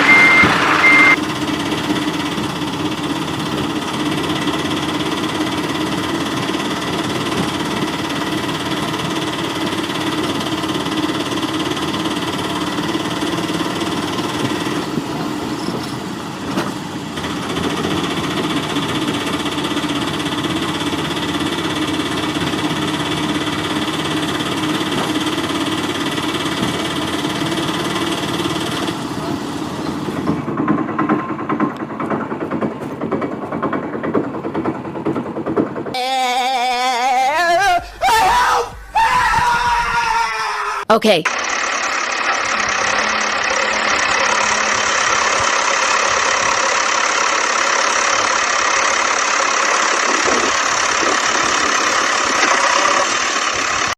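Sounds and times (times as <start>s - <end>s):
toy vehicle motor whining: 49.6s - 53.7s.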